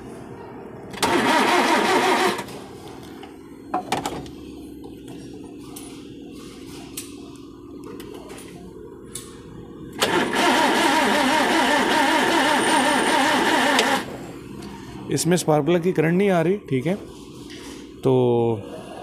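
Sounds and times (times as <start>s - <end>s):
starter cranking engine: 1.0s - 2.5s, 10.0s - 14.1s.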